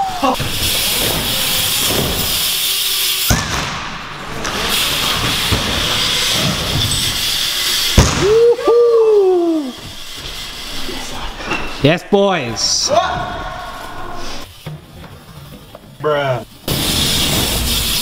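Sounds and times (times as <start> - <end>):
bike tyres rolling on wooden ramps: 0.0 - 11.9, 12.5 - 18.0
bike landing knock: 0.4 - 2.5, 3.2 - 7.2, 7.8 - 8.5
rider cheering woohoo: 8.2 - 9.8.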